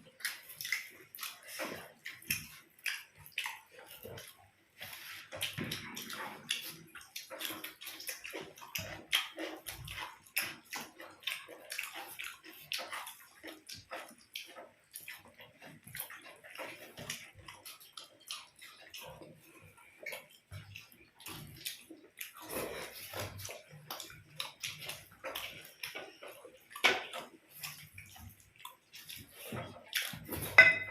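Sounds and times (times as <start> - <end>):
wet chewing: 0.0 - 30.9.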